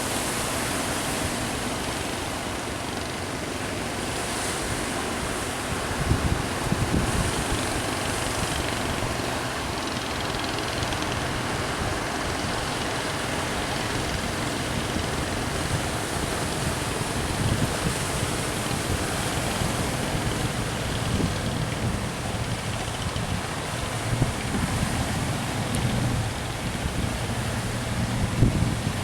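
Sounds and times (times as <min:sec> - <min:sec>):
surf breaking on shore: 0:00.0 - 0:29.0
wind buffeting microphone: 0:04.8 - 0:29.0.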